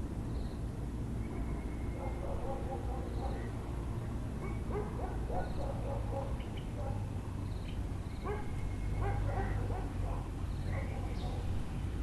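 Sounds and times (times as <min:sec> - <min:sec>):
steady low background hum: 0:00.0 - 0:12.0
bird calls: 0:01.2 - 0:03.7, 0:04.4 - 0:11.6
dogs yelping and barking: 0:01.9 - 0:03.6, 0:04.4 - 0:07.1, 0:08.2 - 0:11.6.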